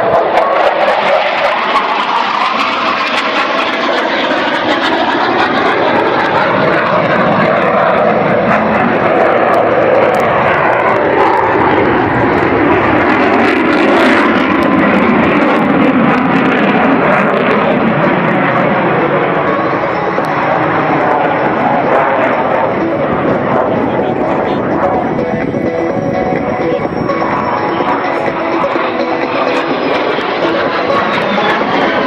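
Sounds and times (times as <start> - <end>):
propeller aircraft passing overhead: 0.0 - 32.0.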